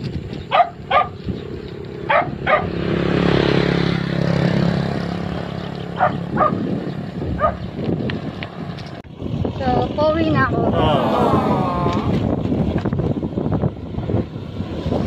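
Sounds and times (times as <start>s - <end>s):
dog barking: 0.5s - 1.2s, 2.1s - 2.8s, 6.0s - 6.6s, 7.4s - 7.7s
vehicle engine passing: 0.5s - 15.0s.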